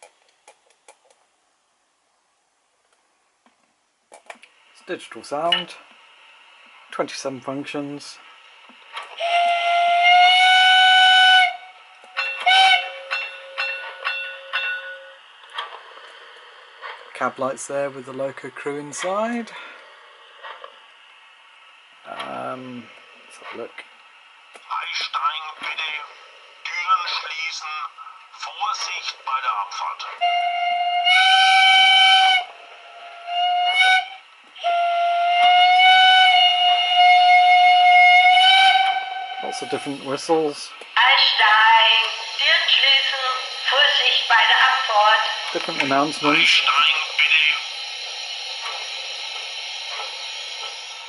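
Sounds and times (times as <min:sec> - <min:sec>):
rhythmic steam hissing: 0:04.5 - 0:51.0
steam whistle blast: 0:09.2 - 0:13.7, 0:30.2 - 0:40.0
steady tone: 0:41.2 - 0:51.0.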